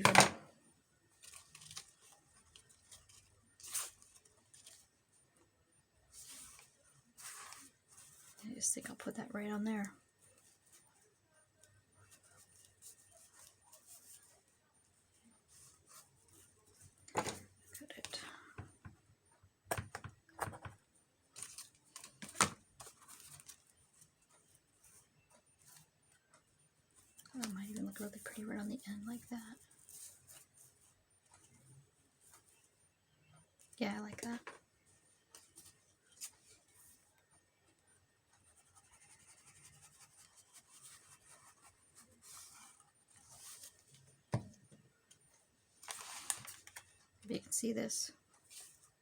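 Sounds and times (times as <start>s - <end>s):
paper rustling on a desk: 1.1s - 5.0s, 6.1s - 9.0s, 12.0s - 14.6s, 21.4s - 25.9s, 38.5s - 44.5s, 45.8s - 47.1s.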